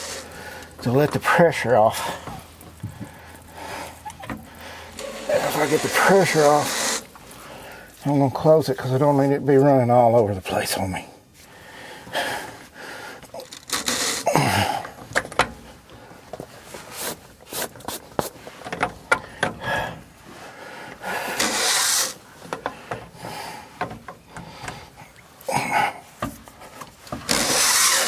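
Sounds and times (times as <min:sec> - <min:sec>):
short hissing rush: 0:04.8 - 0:07.4, 0:21.2 - 0:22.2
hand tools clicking and tapping: 0:17.6 - 0:19.6.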